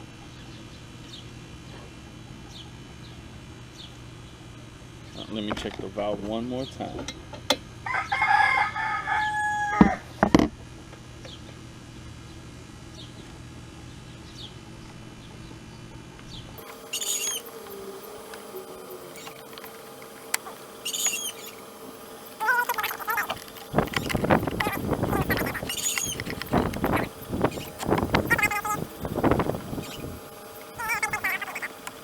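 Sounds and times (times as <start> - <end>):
bird crowing: 7.8 - 10.2, 16.6 - 31.8.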